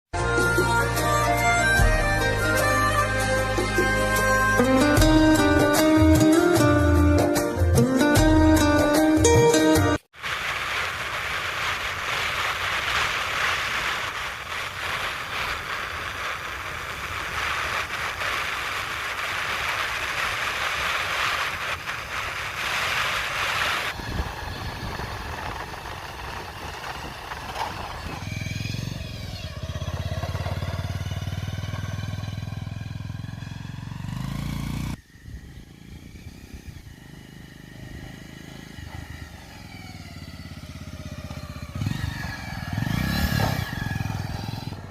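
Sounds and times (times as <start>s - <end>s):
steady noisy hiss: 10.2s - 24.0s
engine running: 10.3s - 44.9s.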